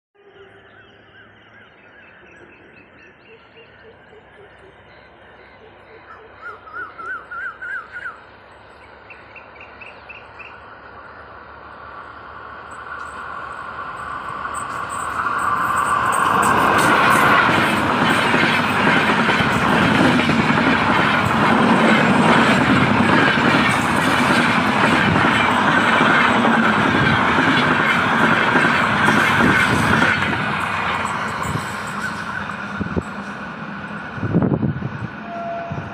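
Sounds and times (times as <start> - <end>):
train clattering past: 8.3 - 35.9.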